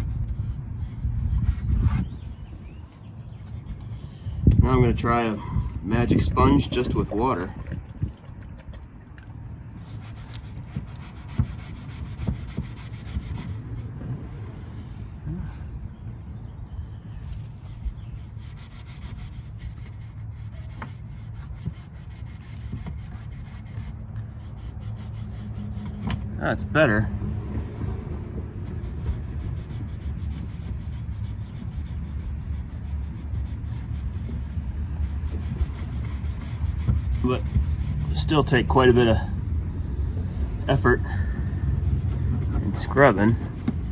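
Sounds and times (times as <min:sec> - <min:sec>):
steady low rumble: 0:00.0 - 0:43.9
sponge scrubbing metal: 0:09.8 - 0:14.0, 0:17.6 - 0:26.2, 0:28.2 - 0:38.7, 0:41.8 - 0:43.9.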